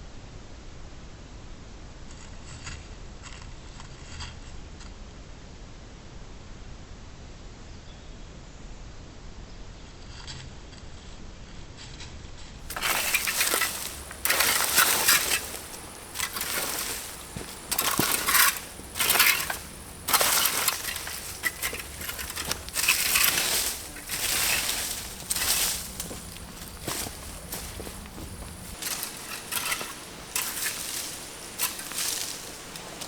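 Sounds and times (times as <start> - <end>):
gravel crunching and scraping: 12.6 - 33.0.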